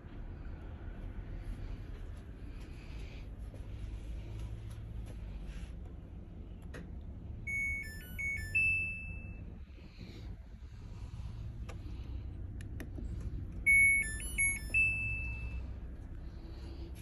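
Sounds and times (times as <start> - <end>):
low steady hum: 0.0 - 17.0
electronic jingle of beeping notes: 7.5 - 9.4, 13.7 - 15.6.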